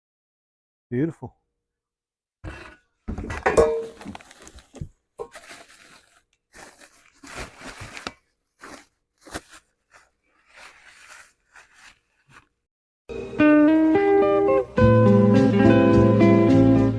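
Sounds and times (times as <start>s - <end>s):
packing material crinkling: 3.8s - 12.6s
acoustic guitar music: 13.1s - 16.9s.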